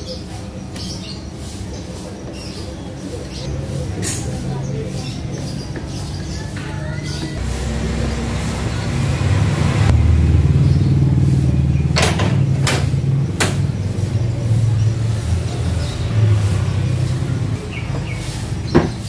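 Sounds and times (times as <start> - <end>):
motor humming: 6.5 - 10.1.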